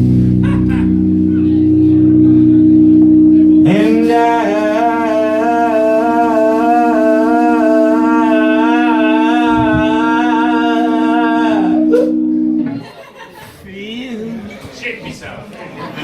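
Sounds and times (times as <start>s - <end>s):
live band sustained chord: 0.0s - 12.8s
person singing long note: 0.9s - 12.7s.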